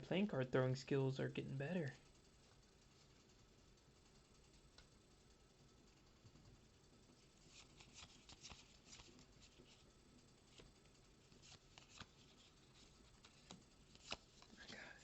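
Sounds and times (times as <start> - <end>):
cards flicking and rustling: 7.4 - 15.0.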